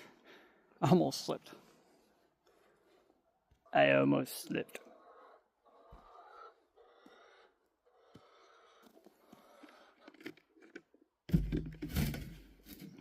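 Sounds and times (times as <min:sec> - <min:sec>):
person breathing: 0:00.0 - 0:00.8, 0:01.5 - 0:03.2.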